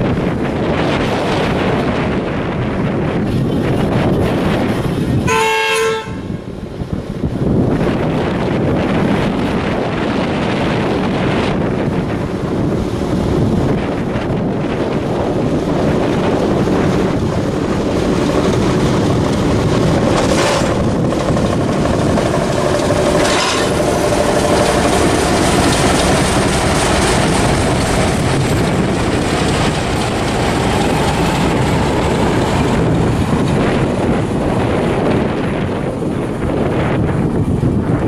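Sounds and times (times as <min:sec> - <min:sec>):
diesel locomotive engine running: 0:00.0 - 0:38.0
wind on microphone: 0:00.0 - 0:38.0
wheels clattering over rails: 0:09.0 - 0:37.2.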